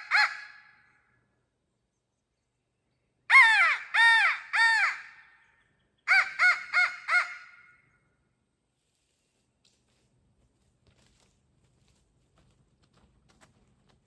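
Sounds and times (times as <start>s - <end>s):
crow call cawing: 0.0s - 0.8s, 3.3s - 5.4s, 6.1s - 7.8s.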